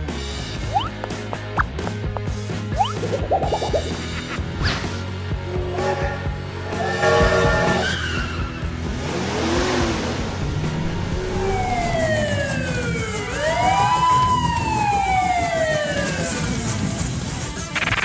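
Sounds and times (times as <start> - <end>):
background music: 0.0 - 18.0
wailing police siren: 10.5 - 17.1.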